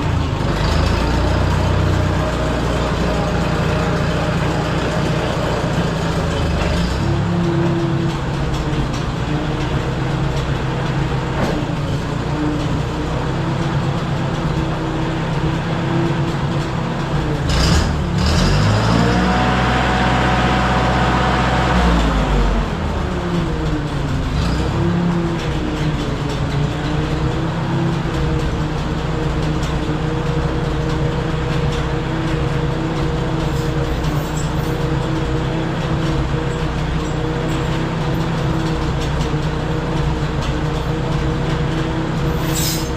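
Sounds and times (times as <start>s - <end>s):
dozer engine running: 0.0s - 42.9s
sharp clank: 42.4s - 42.9s.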